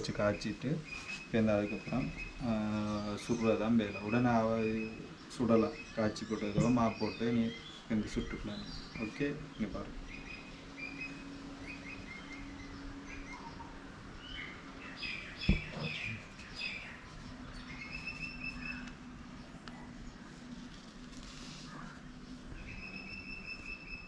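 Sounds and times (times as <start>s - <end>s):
small birds chirping: 0.0s - 20.5s, 21.6s - 24.0s
faint steady hum: 0.0s - 24.0s
sharp knock: 15.5s - 15.9s.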